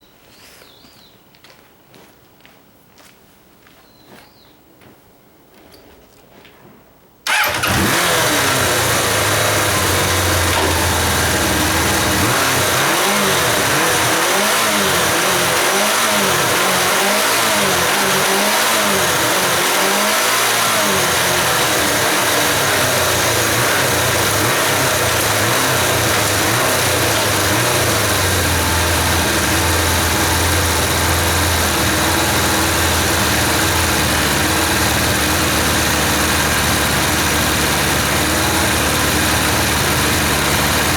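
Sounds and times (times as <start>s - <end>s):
motorcycle engine starting: 7.2s - 40.9s
motorcycle engine revving: 7.3s - 40.9s.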